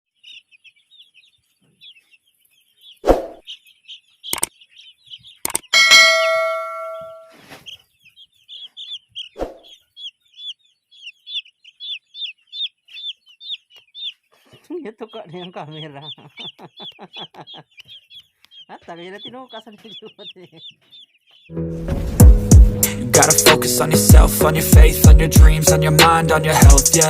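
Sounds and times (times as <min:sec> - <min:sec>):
chicks peeping: 0:00.1 - 0:21.6
metallic clang: 0:05.8 - 0:07.4.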